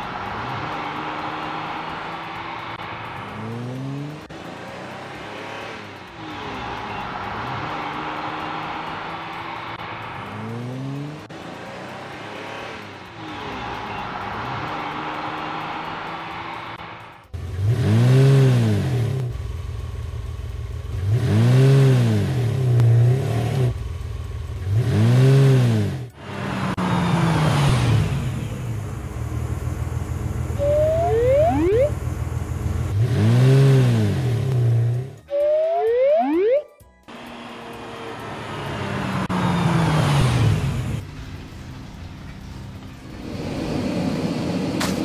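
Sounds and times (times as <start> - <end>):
cartoon engine revving: 30.6 - 32.0.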